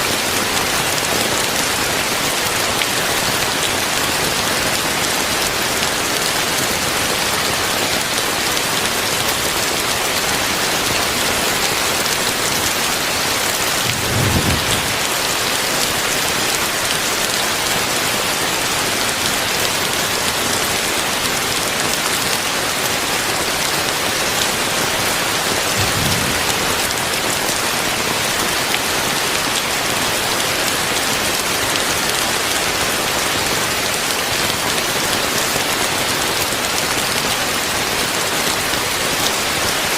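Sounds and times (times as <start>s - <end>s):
heavy rain hissing: 0.5s - 31.3s
low rumbles: 13.8s - 15.3s.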